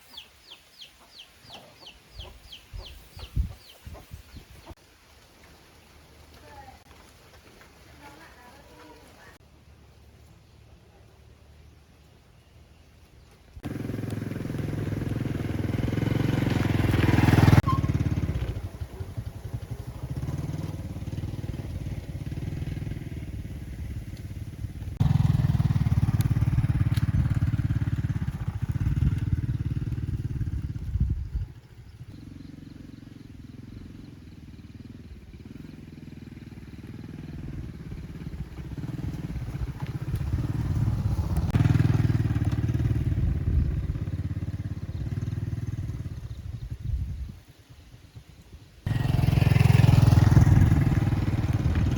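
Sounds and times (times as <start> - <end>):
vehicle engine running: 13.1 - 51.9.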